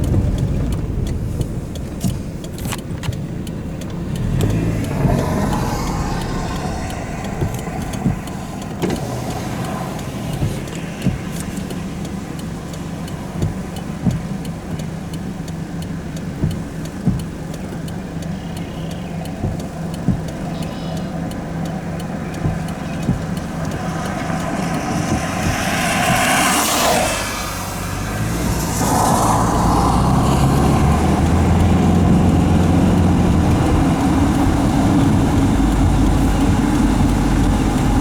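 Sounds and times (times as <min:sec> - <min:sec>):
vehicle engine running: 0:00.0 - 0:38.0
vehicle passing by: 0:03.5 - 0:13.3, 0:17.7 - 0:38.0.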